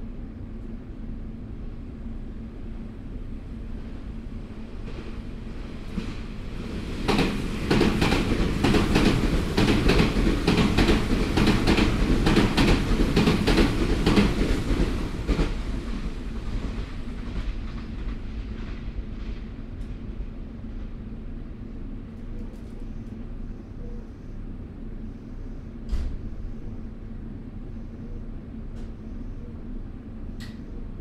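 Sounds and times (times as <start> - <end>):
train running rumble: 0.0 - 31.0
train wheel clatter on track: 5.8 - 20.1.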